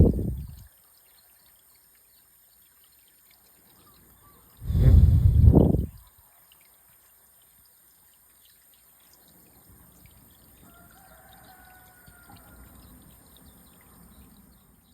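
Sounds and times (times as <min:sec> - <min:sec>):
air buffeting microphone: 0:00.0 - 0:00.6, 0:04.6 - 0:06.0
faint trickling water: 0:00.0 - 0:14.9.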